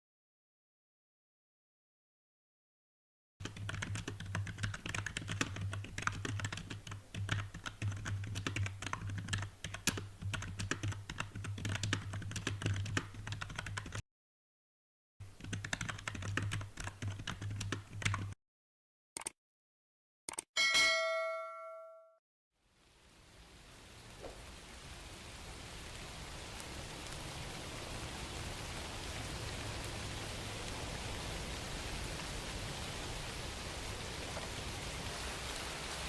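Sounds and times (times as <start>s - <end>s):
typing on computer keyboard: 3.4s - 14.0s, 15.4s - 18.4s, 20.3s - 20.5s.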